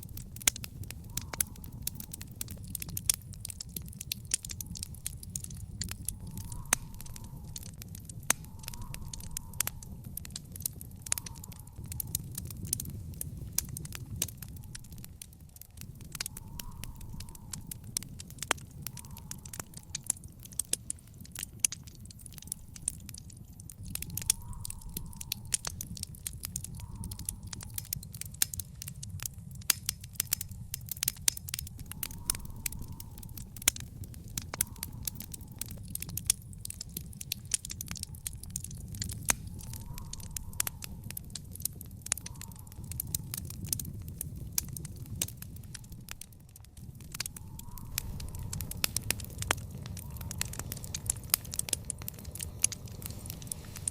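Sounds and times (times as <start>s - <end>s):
low rumble of flames: 0.0s - 53.9s
wood fire crackling and popping: 0.0s - 53.9s.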